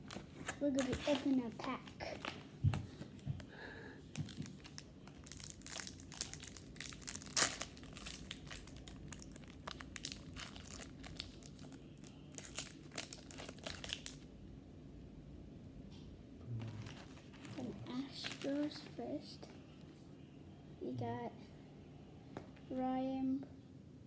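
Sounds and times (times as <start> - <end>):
foil wrapper tearing and crinkling: 4.1 - 14.2, 16.8 - 19.0.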